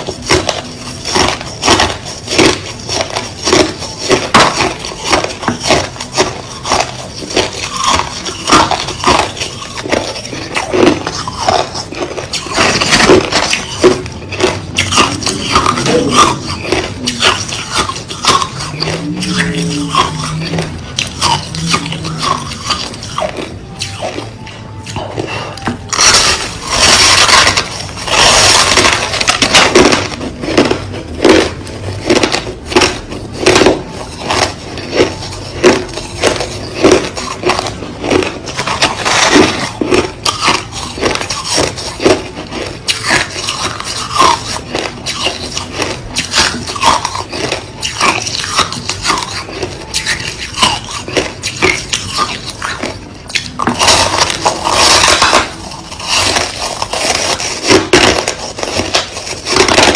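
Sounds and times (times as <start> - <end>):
crushed ice crunching being chewed: 0.0 - 59.9.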